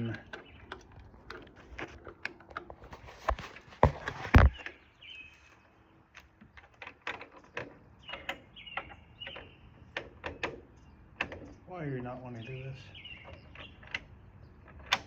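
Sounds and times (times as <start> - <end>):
lock hardware clicking: 13.2 - 15.0.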